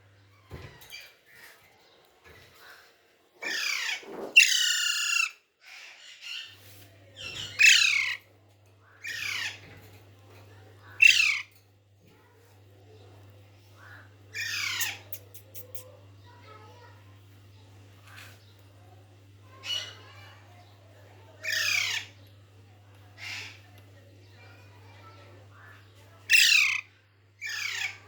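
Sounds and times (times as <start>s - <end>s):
parrot squawking: 14.4s - 15.8s, 26.3s - 26.8s.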